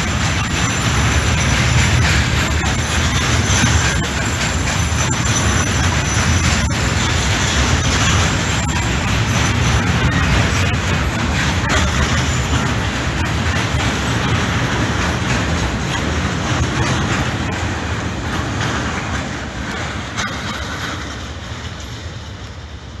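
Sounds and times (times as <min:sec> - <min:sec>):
freight train wheels clattering: 0:00.0 - 0:23.0.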